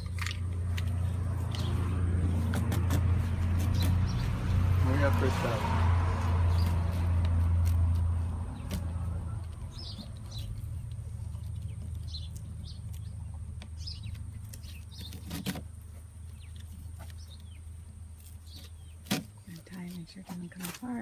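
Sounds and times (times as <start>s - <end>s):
birds chirping: 0.0s - 5.7s, 6.3s - 7.2s, 8.4s - 21.0s.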